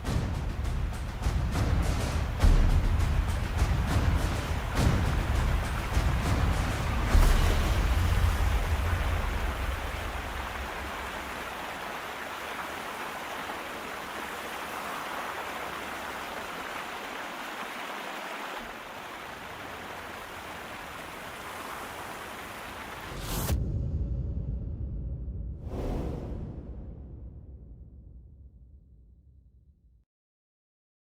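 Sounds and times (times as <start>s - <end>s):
low rumble: 0.0s - 11.5s, 23.1s - 29.3s
running water rushing: 0.0s - 23.3s.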